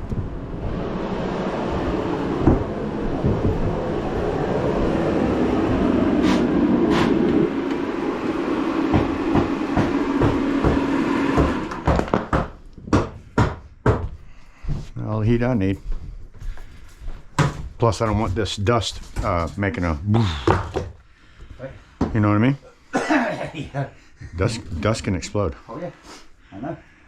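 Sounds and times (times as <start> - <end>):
power tool motor running: 5.6 - 11.9.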